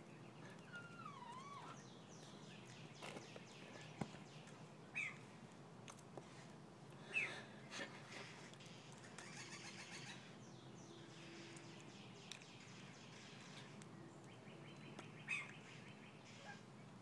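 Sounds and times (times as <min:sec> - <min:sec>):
bird chirps: 0:00.0 - 0:05.3, 0:08.7 - 0:16.6.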